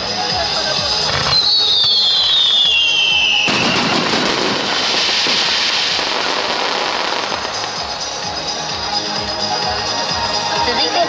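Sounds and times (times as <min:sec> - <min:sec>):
firework whistle falling in pitch: 0:01.3 - 0:04.9
firework burst crackling: 0:01.3 - 0:08.4.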